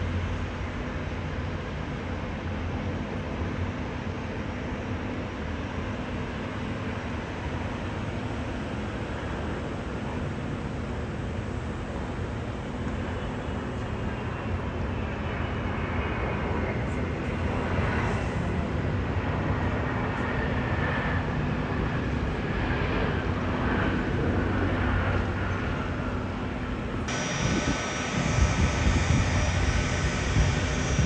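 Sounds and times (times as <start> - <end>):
jet engines rushing with whine: 0.0 - 31.0.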